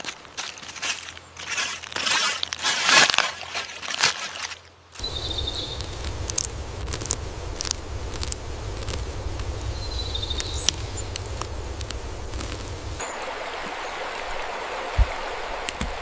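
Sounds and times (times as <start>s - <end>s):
small ticks: 5.0s - 13.0s
soft steady rush: 5.0s - 16.0s.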